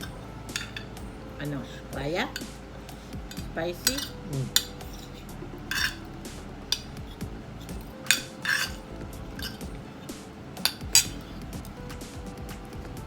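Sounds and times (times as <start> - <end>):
cutlery clinking on plates: 0.0 - 1.0, 1.6 - 11.7.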